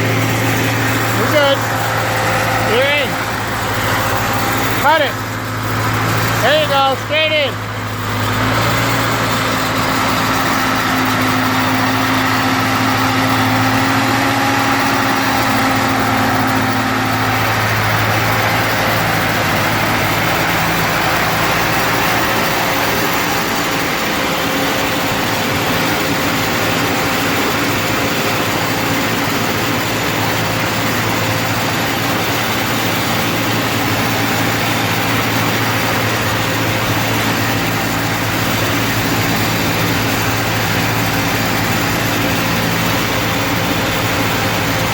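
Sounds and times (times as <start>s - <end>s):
tractor engine idling: 0.0s - 44.9s.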